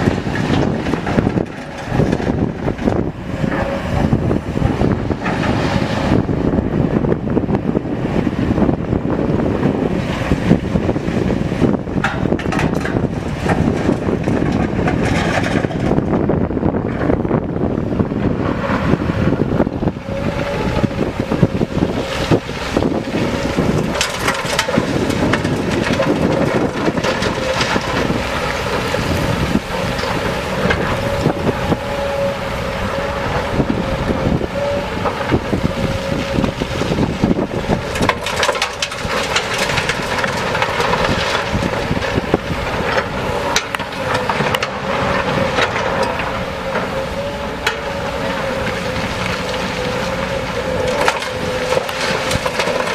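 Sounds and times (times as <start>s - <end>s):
diesel heavy equipment running: 0.0s - 52.9s
knocks and clanks: 12.0s - 16.1s.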